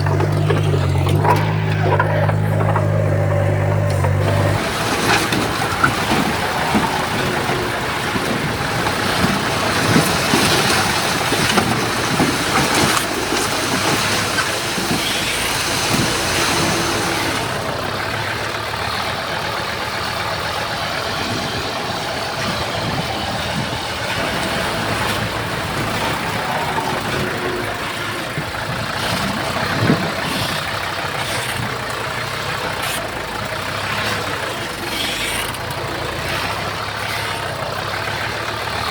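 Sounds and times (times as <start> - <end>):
metal clanks and knocks: 0.0 - 16.1
heavy diesel engines running: 0.0 - 38.9.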